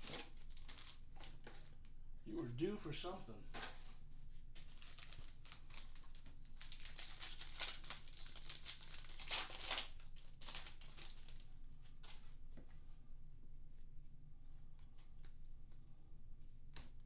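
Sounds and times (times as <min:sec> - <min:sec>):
wrapper tearing and crinkling: 0:00.0 - 0:01.4, 0:04.6 - 0:11.5.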